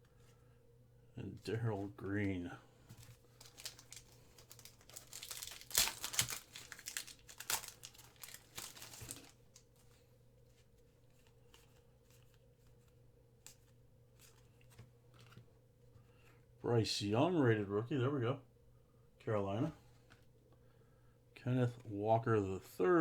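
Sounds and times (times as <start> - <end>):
foil wrapper tearing and crinkling: 2.9 - 9.7.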